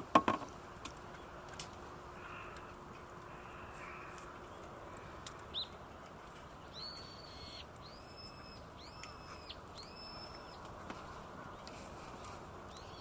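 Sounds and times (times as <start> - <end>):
bird calling: 2.1 - 5.8, 6.5 - 11.9, 12.7 - 13.0.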